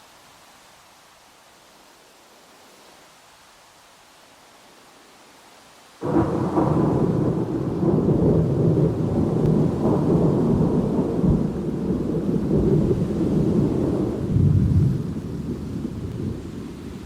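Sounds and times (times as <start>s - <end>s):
faint hiss: 0.0s - 17.0s
rain: 0.0s - 17.0s
thunder rumbling: 6.0s - 17.0s.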